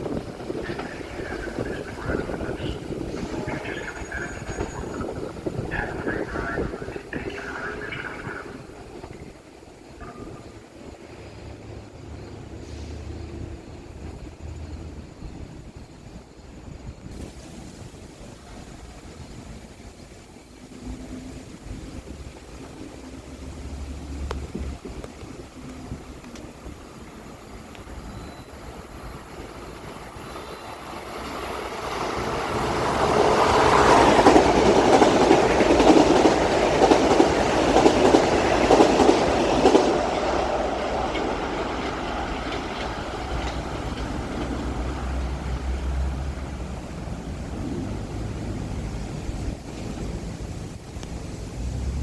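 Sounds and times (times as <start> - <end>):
wheels clattering over rail joints: 0.0 - 6.9, 29.8 - 52.0
electric train passing: 0.0 - 52.0.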